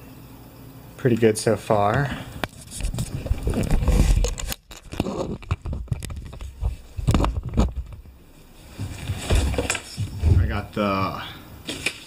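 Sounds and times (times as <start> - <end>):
clicks and scrapes: 2.4 - 8.0.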